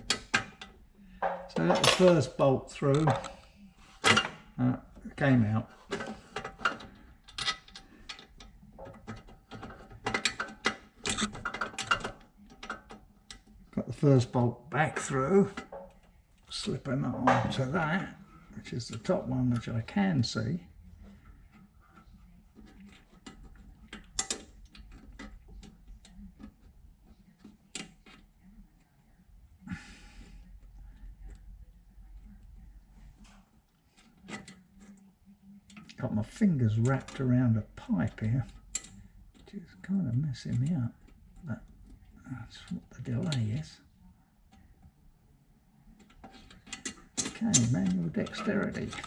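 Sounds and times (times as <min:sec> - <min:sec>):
metallic clicks of bolt and parts: 0:05.9 - 0:13.5, 0:22.8 - 0:26.6.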